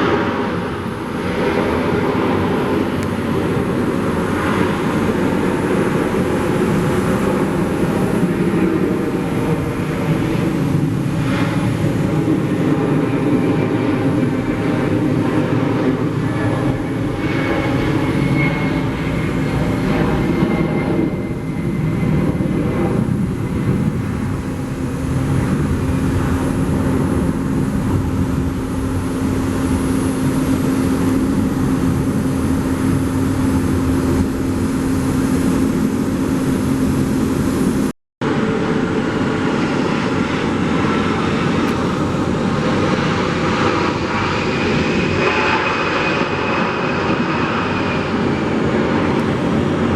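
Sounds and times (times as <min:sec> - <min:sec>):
jet engines running: 0:00.0 - 0:49.9.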